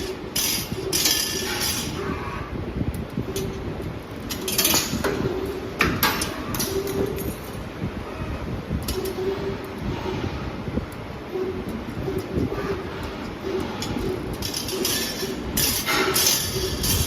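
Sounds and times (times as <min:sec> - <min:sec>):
metallic clinks and rattles: 0:13.8 - 0:17.0.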